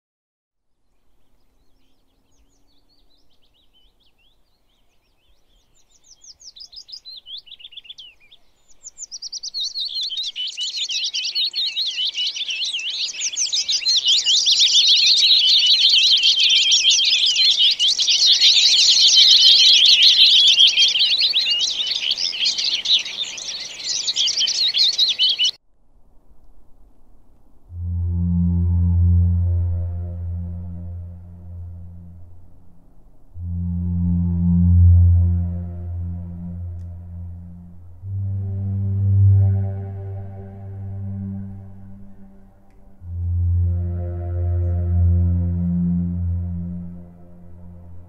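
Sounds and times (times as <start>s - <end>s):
birds chirping: 1.2s - 25.6s.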